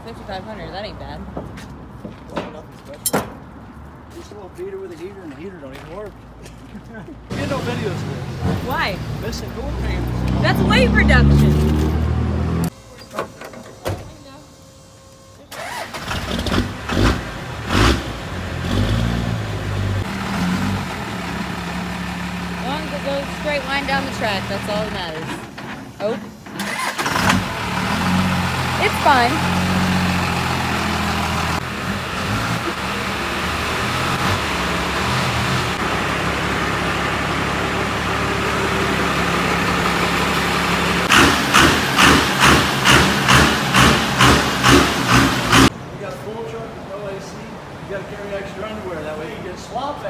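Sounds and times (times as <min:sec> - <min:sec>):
diesel engine revving and idling: 0:07.3 - 0:12.8, 0:15.5 - 0:45.8.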